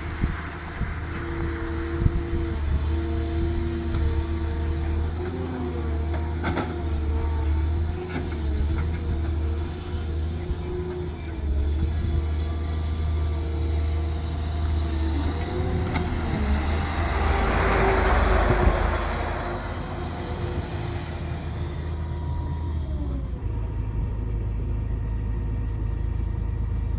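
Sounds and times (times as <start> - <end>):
diesel excavator engine running: 0.0 - 26.9
whining tones: 13.6 - 24.5.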